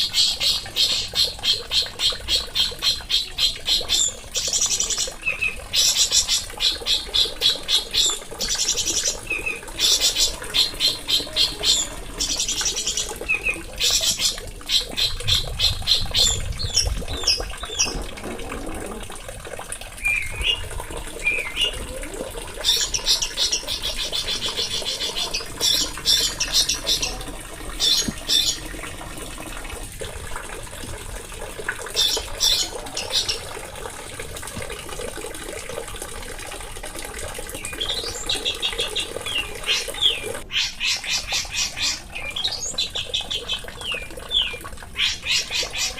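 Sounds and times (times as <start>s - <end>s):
songbird trilling: 22.7s - 27.2s.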